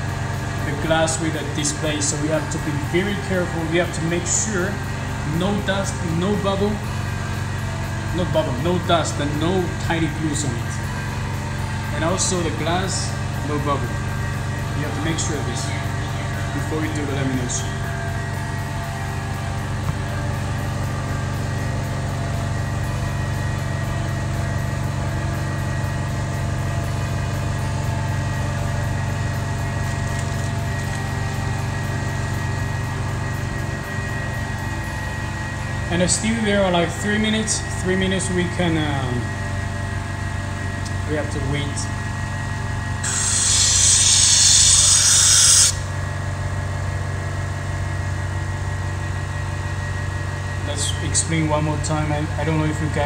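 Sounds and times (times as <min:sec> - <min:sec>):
laminating machine pump hum: 0:00.0 - 0:53.0.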